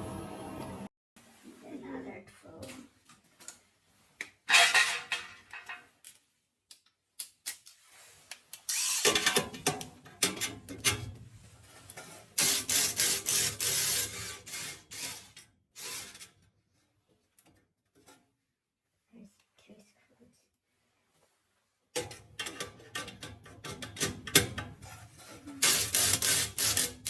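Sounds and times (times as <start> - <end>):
tools and metal clattering: 4.4 - 6.4, 9.0 - 11.2, 22.0 - 27.0
power screwdriver whirring: 8.7 - 9.2.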